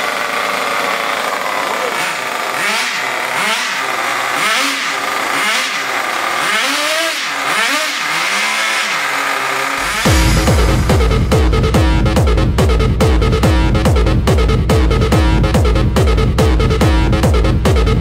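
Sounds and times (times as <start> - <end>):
toy truck motor revving: 0.0 - 10.1
electronic music with heavy beat: 9.8 - 18.0.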